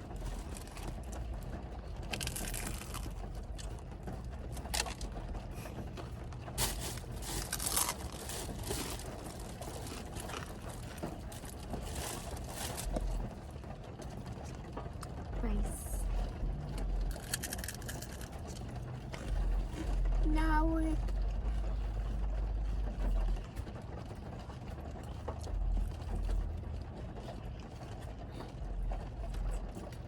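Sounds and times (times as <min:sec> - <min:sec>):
crinkling and crunching while eating: 0:00.0 - 0:15.3, 0:16.4 - 0:20.2.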